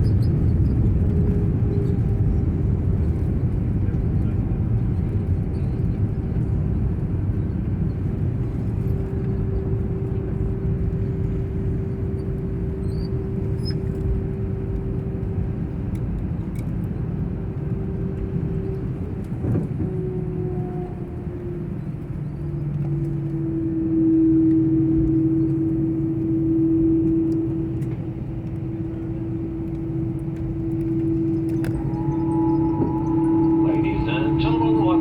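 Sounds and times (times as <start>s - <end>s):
aircraft cabin engine rumble: 0.0s - 35.0s
steady hum tone: 17.5s - 35.0s.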